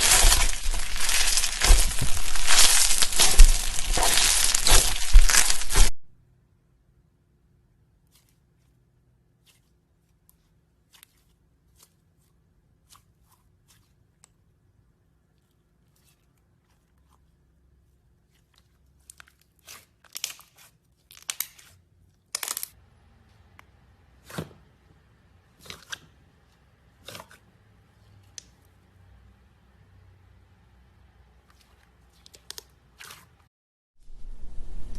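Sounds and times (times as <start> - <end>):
slime crackling and popping: 0.0 - 6.0, 19.0 - 22.7.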